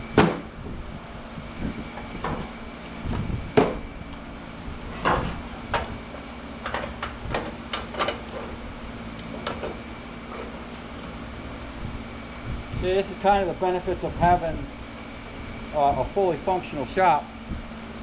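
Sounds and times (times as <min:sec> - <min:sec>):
steady machine hum: 0:00.0 - 0:18.0
metal clanks and knocks: 0:04.9 - 0:06.0, 0:06.6 - 0:08.6, 0:09.2 - 0:10.6.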